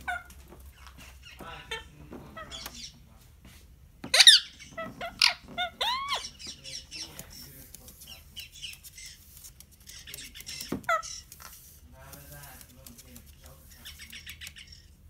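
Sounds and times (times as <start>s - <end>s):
bird calls: 0.0s - 3.1s, 4.0s - 11.5s, 13.7s - 15.0s
soft chirps and clicks: 6.2s - 15.0s.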